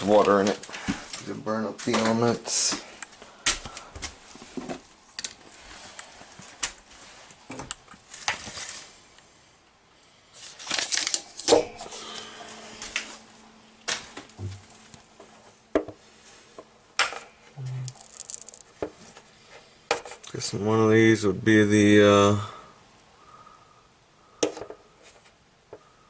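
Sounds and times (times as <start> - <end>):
objects being handled: 10.4 - 20.4.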